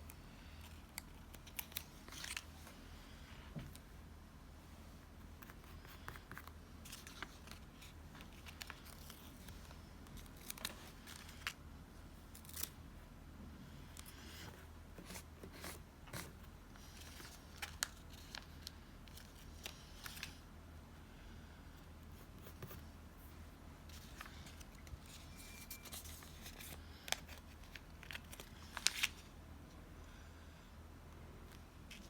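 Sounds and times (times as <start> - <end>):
paper and tape rustling: 5.5 - 11.6, 23.9 - 29.3.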